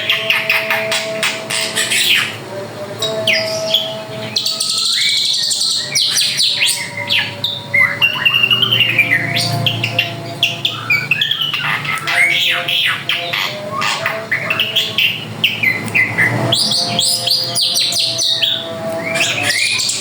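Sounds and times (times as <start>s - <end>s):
bird singing chirps and whistles: 3.0s - 20.0s.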